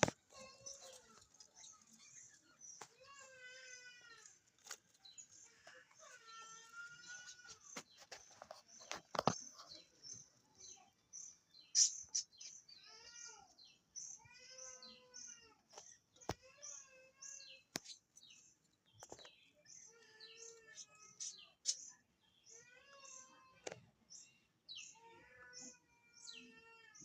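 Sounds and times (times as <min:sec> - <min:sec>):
budgerigars chirping: 0:11.6 - 0:12.6.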